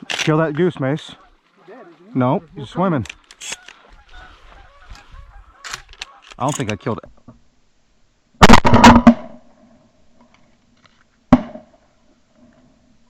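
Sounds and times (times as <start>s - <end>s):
shotgun blasts: 8.4s - 9.4s.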